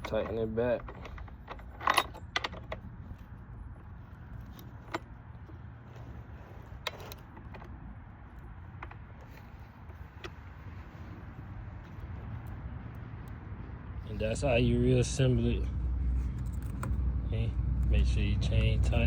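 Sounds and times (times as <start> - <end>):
metal tool clicks and rattles: 0.0 - 3.2
steady low hum: 0.0 - 19.0.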